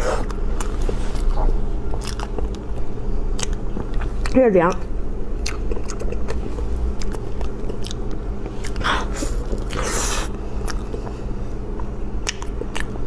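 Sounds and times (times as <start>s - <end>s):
chewing soft cake: 0.0s - 13.0s
wet mouth clicks and smacks: 12.2s - 13.0s.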